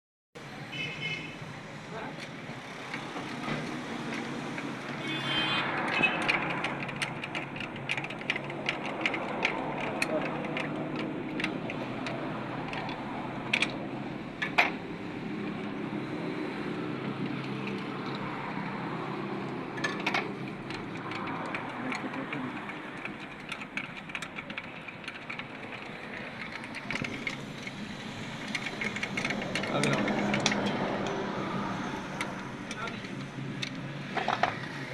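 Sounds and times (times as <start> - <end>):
metallic clicks and taps: 5.7 - 13.8.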